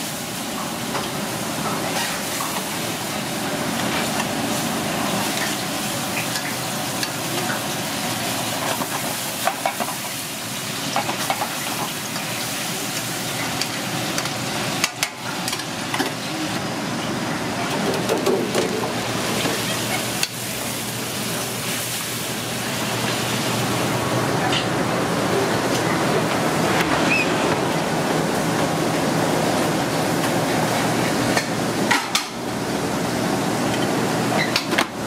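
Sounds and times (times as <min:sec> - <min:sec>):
food sizzling in hot oil: 0:00.0 - 0:16.3, 0:19.0 - 0:24.0.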